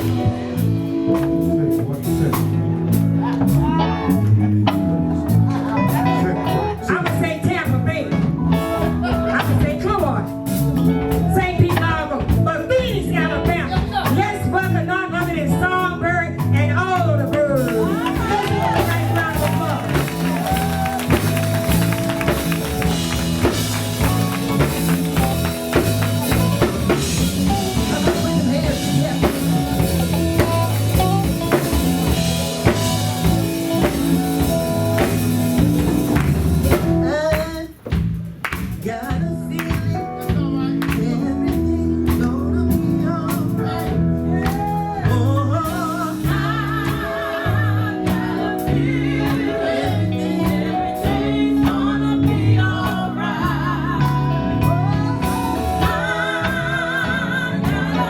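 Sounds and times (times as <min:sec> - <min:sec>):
live gospel band with singing: 0:00.0 - 0:58.0.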